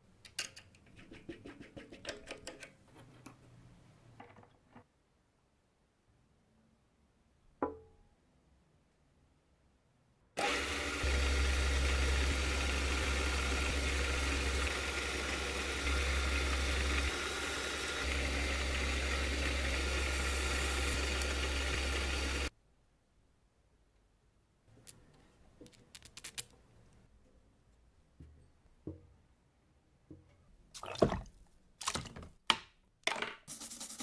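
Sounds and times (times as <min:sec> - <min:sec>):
electric saw motor running: 0:10.4 - 0:22.5.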